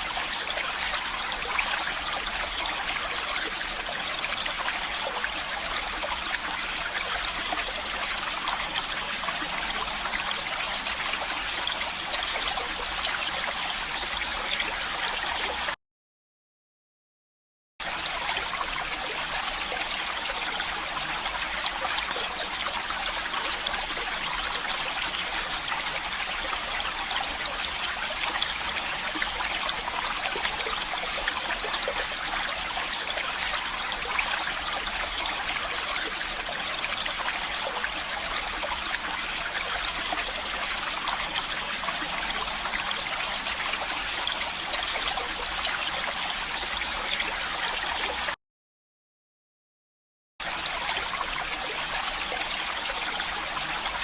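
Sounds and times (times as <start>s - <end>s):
stream water trickling: 0.0s - 15.8s, 17.8s - 48.4s, 50.4s - 54.0s.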